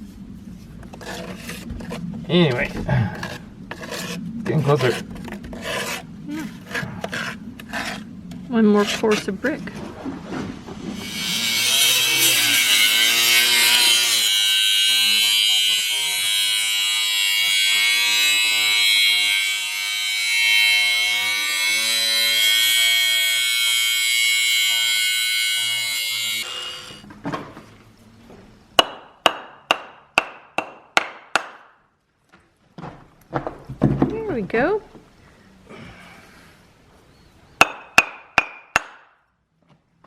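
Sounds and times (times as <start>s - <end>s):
power tool cutting brick: 11.0s - 27.0s.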